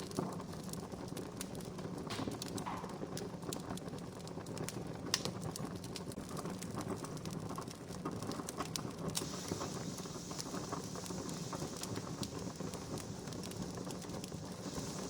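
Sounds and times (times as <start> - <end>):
campfire crackling: 0.0 - 15.0
low rumble of flames: 0.0 - 15.0
steady hiss: 9.0 - 15.0.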